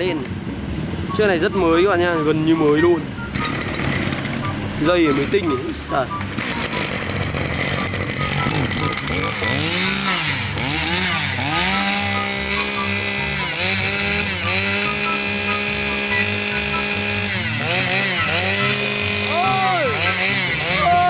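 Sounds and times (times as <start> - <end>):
brush cutter engine revving: 3.4 - 5.4, 6.2 - 21.0.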